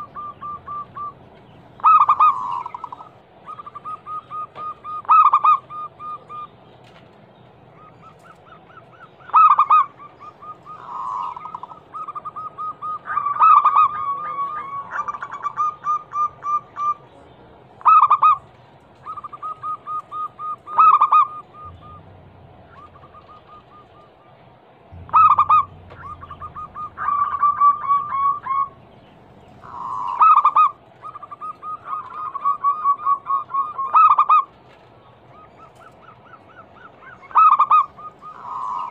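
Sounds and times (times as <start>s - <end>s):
doves cooing: 0.0s - 38.9s.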